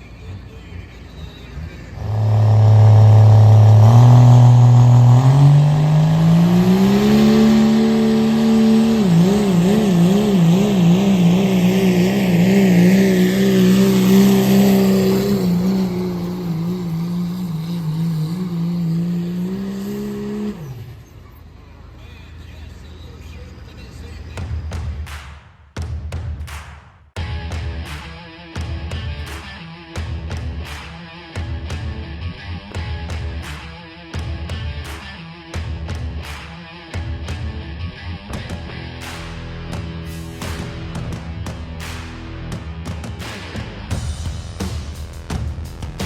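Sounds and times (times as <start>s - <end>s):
diesel truck engine revving: 0.0s - 24.7s.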